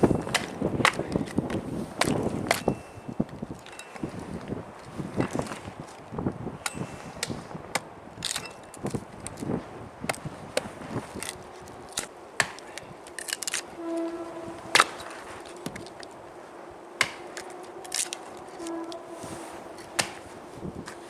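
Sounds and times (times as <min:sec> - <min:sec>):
wood splitting cracks: 0:00.1 - 0:02.7, 0:06.6 - 0:13.7, 0:14.7 - 0:16.2, 0:17.0 - 0:18.8, 0:19.8 - 0:21.0.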